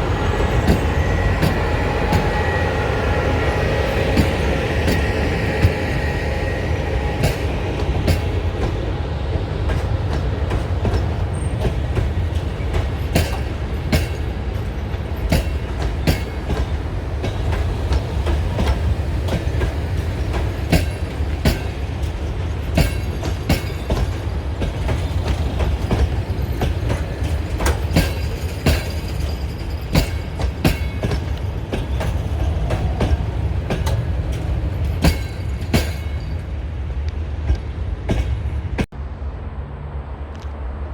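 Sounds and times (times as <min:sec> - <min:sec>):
train rumbling: 0:00.0 - 0:40.9
wheels clicking over rail joints: 0:07.2 - 0:38.6.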